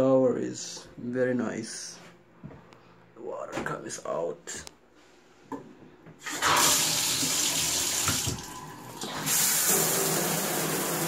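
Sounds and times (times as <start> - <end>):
shower water spraying: 9.1 - 11.0.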